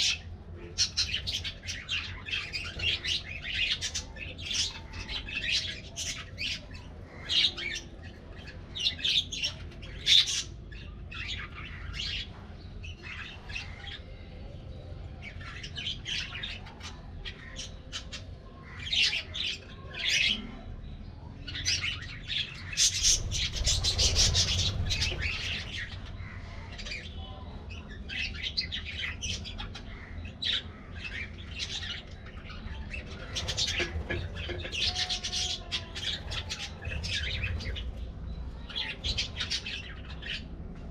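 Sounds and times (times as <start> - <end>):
budgerigars chattering: 28.1 - 37.9.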